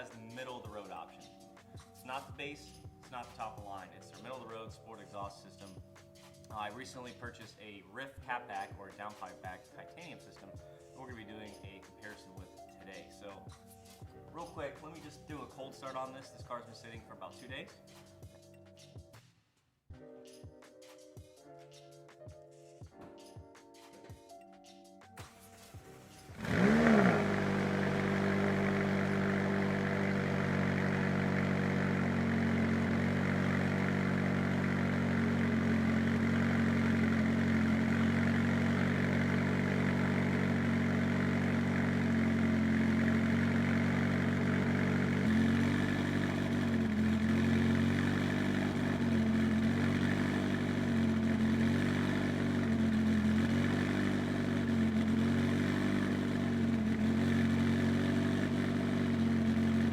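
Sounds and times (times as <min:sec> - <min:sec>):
car engine idling: 0:25.8 - 0:59.9.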